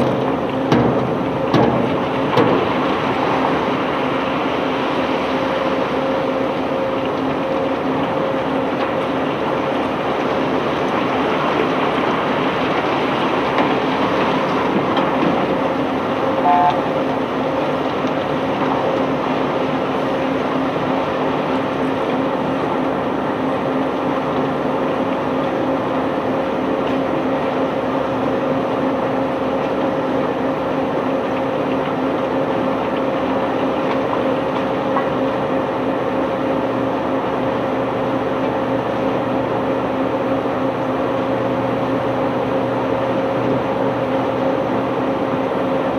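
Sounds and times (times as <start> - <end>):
machinery humming and rumbling: 0.0 - 45.9
high two-note chirp: 16.4 - 16.9.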